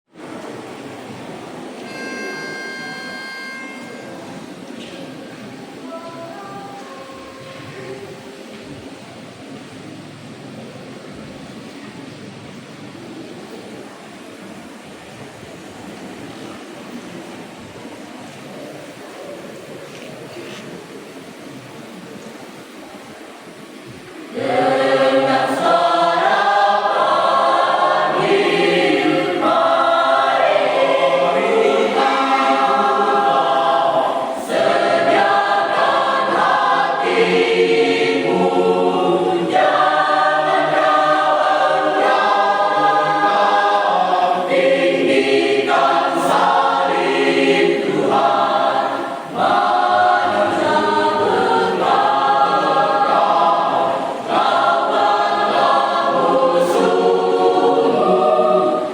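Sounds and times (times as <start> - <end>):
church choir singing: 24.2 - 58.9.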